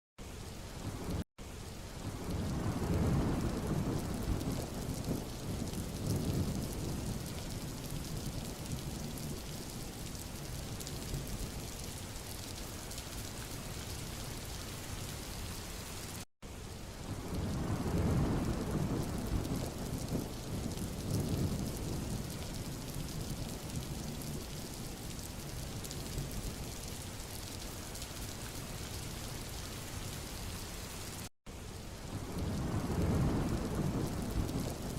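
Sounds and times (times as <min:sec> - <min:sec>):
rain falling on a road: 0:00.2 - 0:34.9
low rumble of distant thunder: 0:02.0 - 0:11.7, 0:17.1 - 0:26.8, 0:32.1 - 0:34.9.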